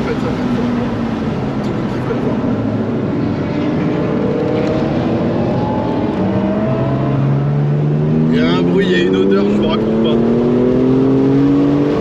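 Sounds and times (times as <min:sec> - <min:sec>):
road and wind noise: 0:00.0 - 0:12.0
car engine revving up: 0:00.2 - 0:12.0.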